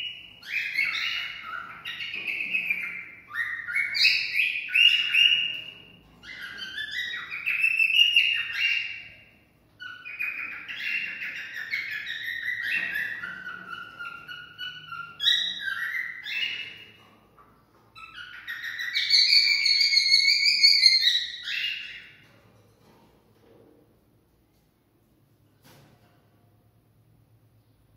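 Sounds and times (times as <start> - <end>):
cockatiel whistling: 0.0 - 9.1, 9.8 - 16.8, 18.0 - 22.1.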